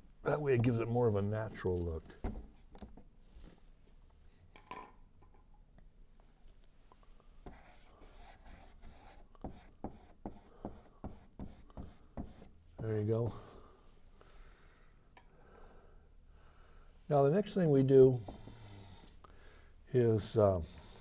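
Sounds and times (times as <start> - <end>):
paintbrush strokes on canvas: 11.1 - 13.7, 18.1 - 21.0.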